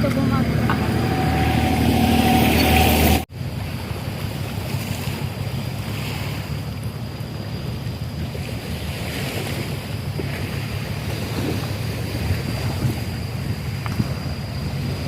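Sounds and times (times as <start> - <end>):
low engine hum: 0.0 - 4.3
sea noise: 0.0 - 15.0.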